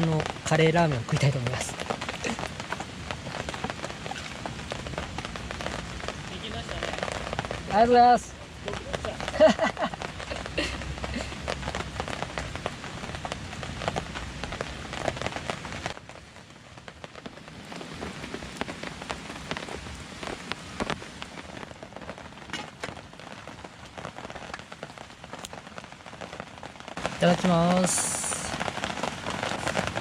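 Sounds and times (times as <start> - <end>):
rain on a tarp: 0.0 - 30.0.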